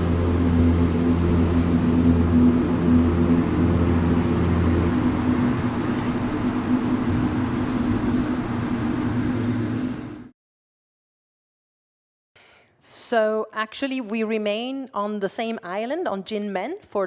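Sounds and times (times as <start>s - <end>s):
rumbling drone: 0.0s - 10.3s.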